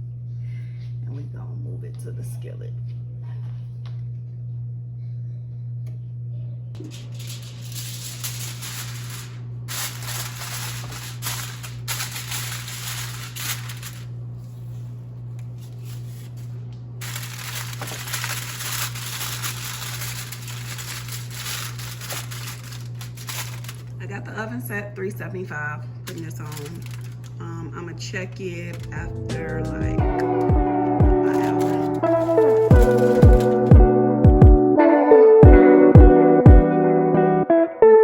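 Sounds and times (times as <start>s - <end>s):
steady low hum: 0.0s - 34.2s.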